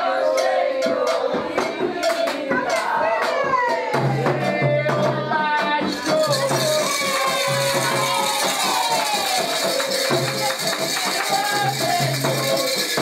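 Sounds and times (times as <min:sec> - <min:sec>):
sharp percussion strikes: 0:00.0 - 0:13.0
voices singing: 0:00.0 - 0:13.0
shaken rattle: 0:05.9 - 0:13.0.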